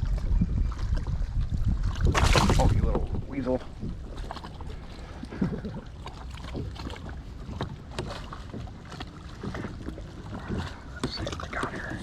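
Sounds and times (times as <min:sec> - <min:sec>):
wind on microphone: 0:00.0 - 0:05.9.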